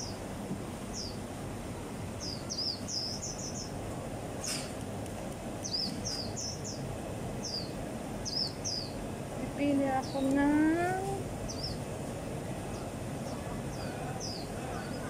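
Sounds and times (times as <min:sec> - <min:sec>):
birds chirping: 0:00.9 - 0:01.3, 0:02.2 - 0:03.8, 0:05.6 - 0:15.0
market hubbub: 0:12.4 - 0:15.0.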